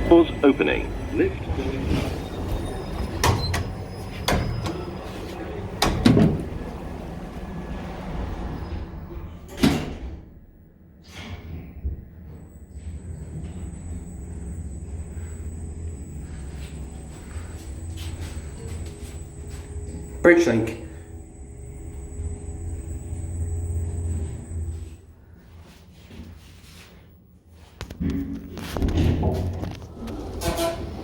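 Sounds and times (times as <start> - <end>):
thin high whine: 0.0 - 9.2, 11.1 - 25.8
lift car humming: 0.0 - 9.7, 10.3 - 25.5, 28.9 - 31.0
lift doors sliding shut: 0.0 - 10.4, 11.0 - 20.2, 28.8 - 31.0.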